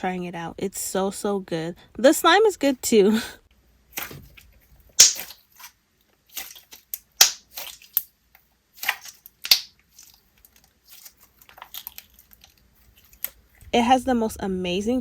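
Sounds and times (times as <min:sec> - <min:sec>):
slime bubble pops and crackles: 0:05.0 - 0:05.3, 0:07.2 - 0:08.0, 0:08.9 - 0:09.7.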